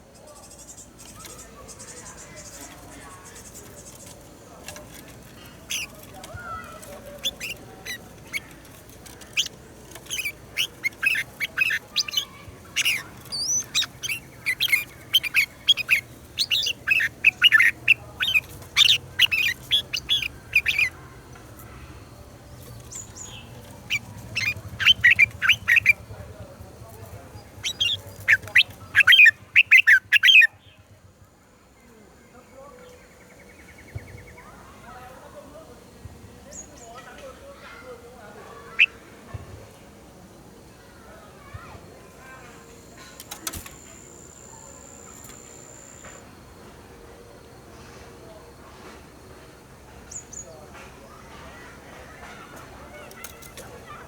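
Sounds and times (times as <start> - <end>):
bird chirping song: 0.0 - 31.0, 36.5 - 39.1, 40.8 - 46.3, 50.0 - 54.0.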